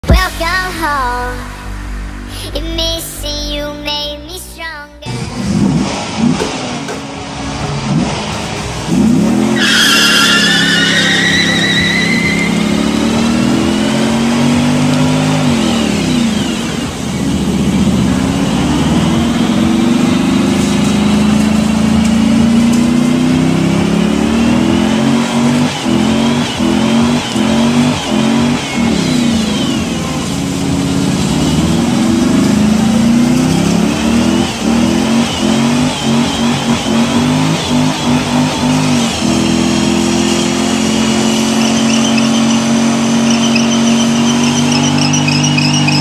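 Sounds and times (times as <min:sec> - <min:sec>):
car engine revving: 0:05.1 - 0:46.0
tyre squeal: 0:08.0 - 0:16.9, 0:31.6 - 0:46.0.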